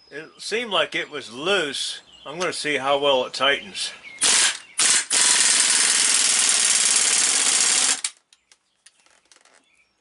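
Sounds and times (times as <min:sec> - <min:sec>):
air impact wrench hammering: 0:04.2 - 0:08.2.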